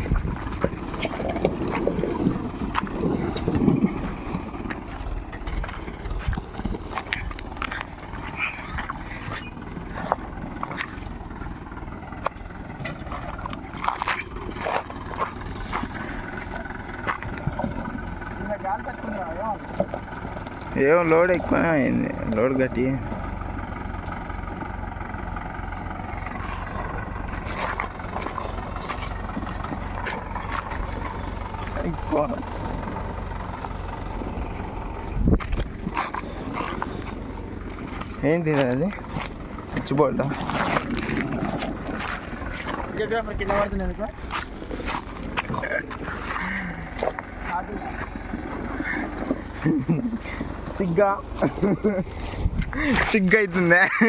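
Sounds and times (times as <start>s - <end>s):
knocks and clatter: 0.0s - 9.3s
tractor diesel engine running: 0.0s - 54.0s.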